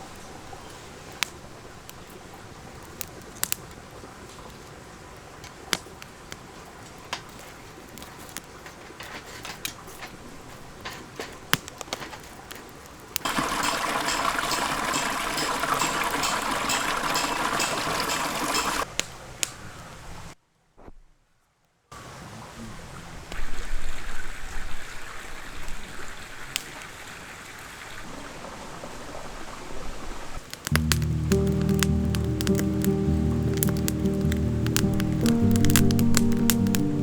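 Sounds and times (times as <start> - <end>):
dense hiss with fine crackle: 0.0 - 28.1, 28.8 - 37.0
wood fire pops and crackles: 1.1 - 4.7, 5.3 - 19.5, 30.4 - 37.0.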